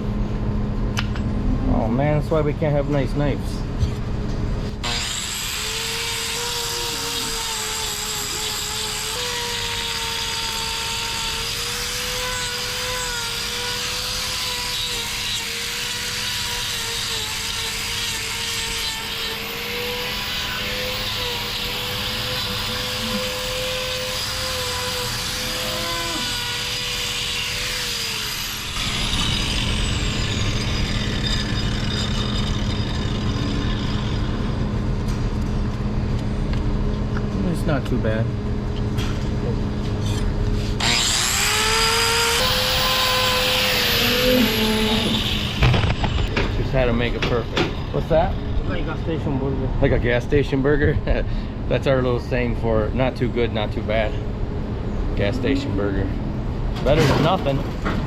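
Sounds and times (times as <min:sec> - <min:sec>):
angle grinder grinding hoof: 0:04.6 - 0:35.2, 0:39.0 - 0:49.0.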